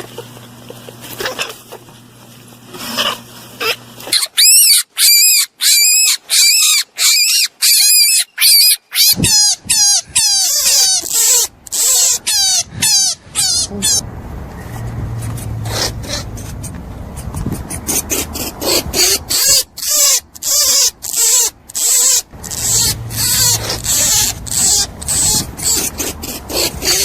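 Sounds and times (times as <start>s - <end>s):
small animal squealing: 1.1s - 1.8s, 2.7s - 14.0s, 15.2s - 27.0s.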